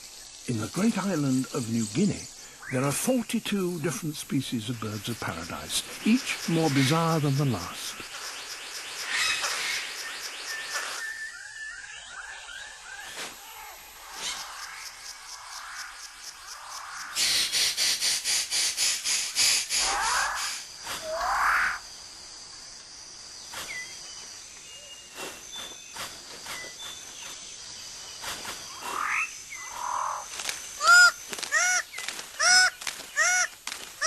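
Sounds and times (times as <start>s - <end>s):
steady high insect hum: 0.0s - 34.0s
birds calling and whistling: 4.8s - 15.2s, 23.4s - 34.0s.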